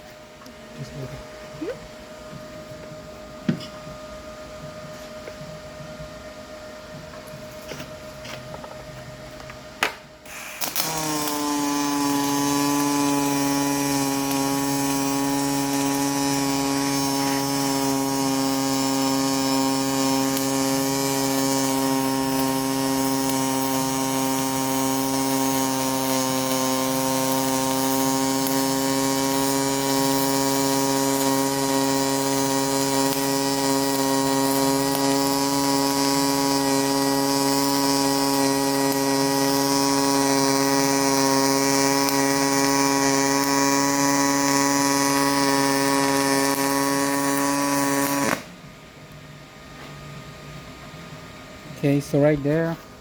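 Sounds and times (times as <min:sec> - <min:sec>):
welding arc buzzing: 0:07.1 - 0:48.6, 0:51.7 - 0:53.0
welder click: 0:09.8 - 0:48.5.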